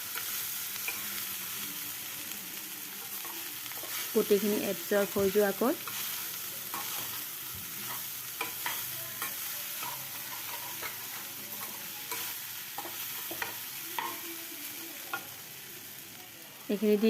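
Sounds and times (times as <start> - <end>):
rice sizzling in a pan: 0.0 - 17.0
spatula scraping a pan: 7.8 - 14.2.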